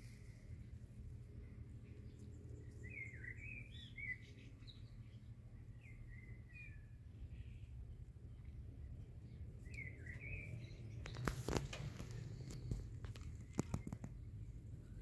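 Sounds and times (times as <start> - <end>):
low outdoor rumble: 0.0 - 15.0
faint bird chirps: 1.4 - 15.0.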